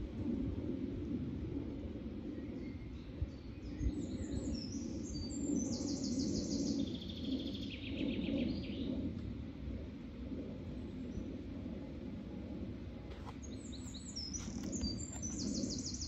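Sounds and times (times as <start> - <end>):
steady low rumble: 0.0 - 16.0
songbird singing: 2.4 - 9.0, 13.3 - 16.0.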